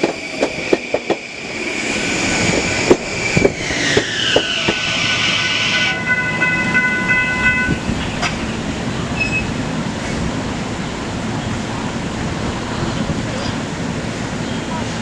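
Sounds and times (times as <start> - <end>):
electric train running: 0.0 - 10.0
high squeal of train: 0.0 - 10.4.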